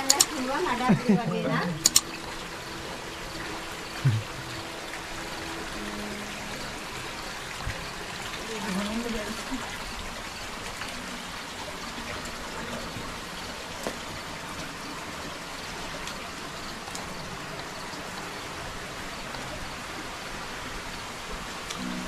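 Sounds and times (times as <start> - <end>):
faint clicks: 0.0 - 0.5, 1.8 - 2.2
water rushing through cave: 0.0 - 22.0.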